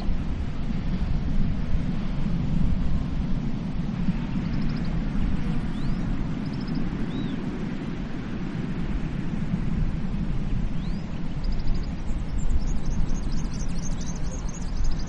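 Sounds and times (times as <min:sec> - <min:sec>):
surf rushing on beach: 0:00.0 - 0:15.0
small birds chirping: 0:04.4 - 0:07.4, 0:10.8 - 0:15.0.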